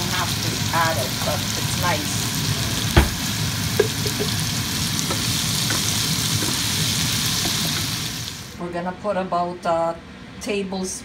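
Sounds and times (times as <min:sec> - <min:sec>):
meat and vegetables sizzling: 0:00.0 - 0:08.6
knock: 0:02.9 - 0:03.2
wooden spatula stirring: 0:05.0 - 0:08.0.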